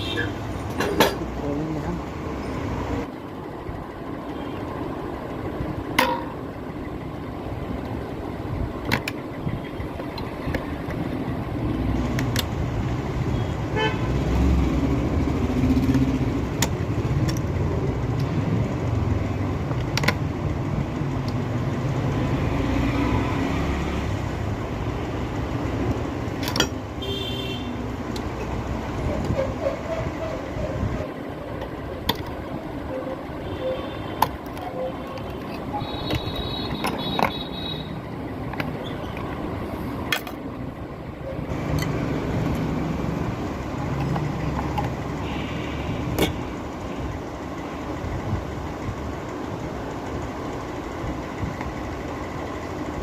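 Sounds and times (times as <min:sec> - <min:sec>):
street traffic rumble: 0:00.0 - 0:53.0
vehicle horn toots: 0:27.0 - 0:27.8.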